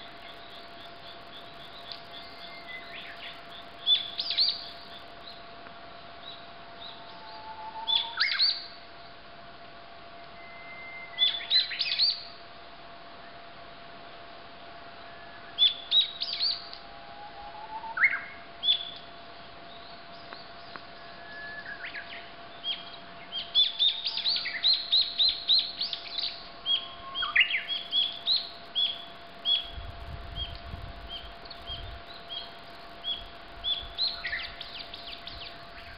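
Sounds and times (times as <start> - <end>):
small birds chirping: 0.0 - 5.4, 22.6 - 35.9.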